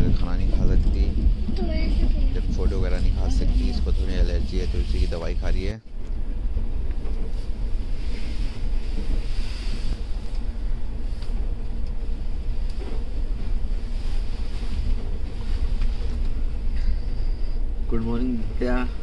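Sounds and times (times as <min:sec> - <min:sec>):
train running rumble and hiss: 0:00.0 - 0:19.0.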